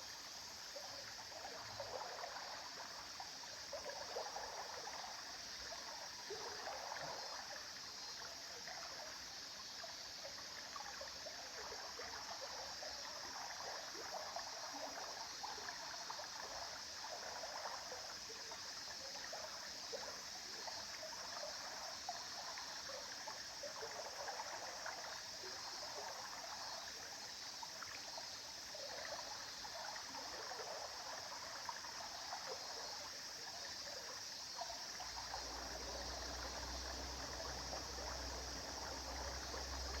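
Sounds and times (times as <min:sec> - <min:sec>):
stream babbling over stones: 0:27.8 - 0:40.0.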